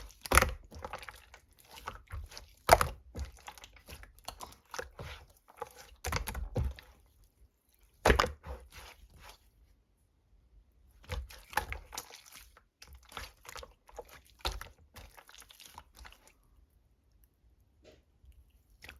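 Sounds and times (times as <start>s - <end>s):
slime squelching and popping: 0.0s - 7.2s, 7.8s - 9.5s, 11.0s - 16.5s.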